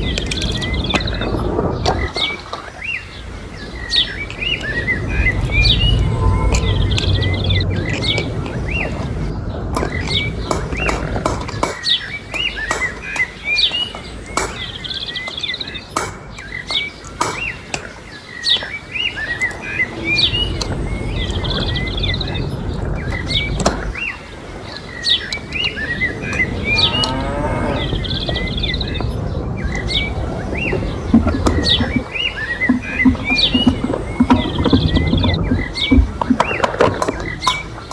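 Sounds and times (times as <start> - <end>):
sharp clicks: 0.0 - 2.9, 3.7 - 24.1
small birds chirping: 0.0 - 37.9
cow mooing: 26.4 - 28.2.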